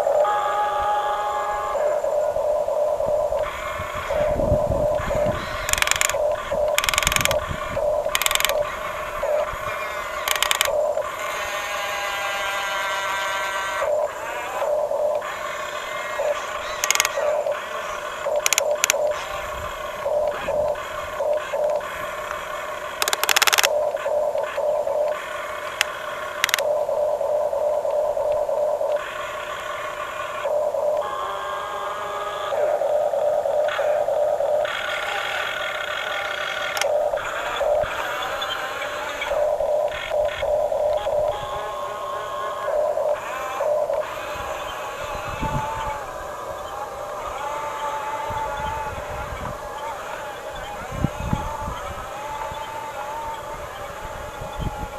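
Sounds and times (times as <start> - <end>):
toy electric motors whining: 0.0 - 54.9
sharp clicks and clatter: 5.6 - 7.4, 8.0 - 8.6, 10.2 - 10.8, 16.8 - 17.2, 18.3 - 19.1, 23.0 - 23.8, 25.8 - 26.6.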